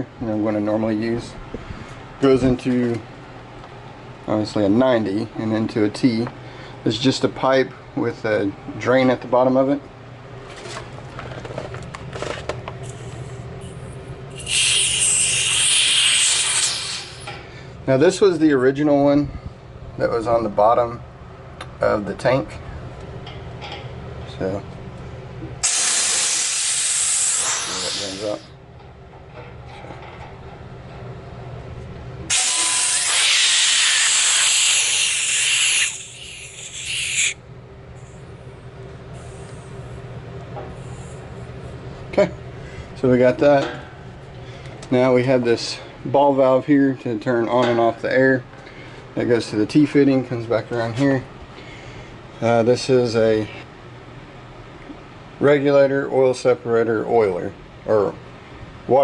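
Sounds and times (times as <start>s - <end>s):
loud steady hiss: 12.9s - 17.4s, 25.6s - 28.5s, 32.3s - 37.4s.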